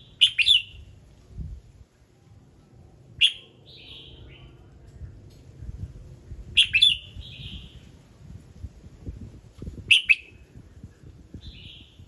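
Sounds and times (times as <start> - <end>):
bird singing: 0.0 - 0.9, 3.2 - 4.7, 6.6 - 8.0.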